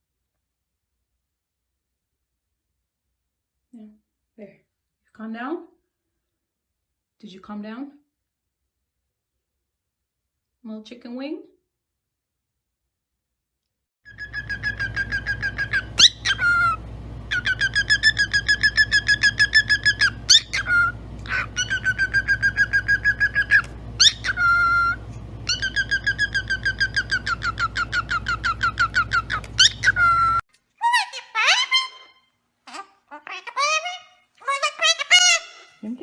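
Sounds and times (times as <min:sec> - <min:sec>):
steady low hum: 0:14.1 - 0:30.4
parrot whistling rapid notes: 0:14.1 - 0:32.2
parrot rising squeaks: 0:14.1 - 0:35.8.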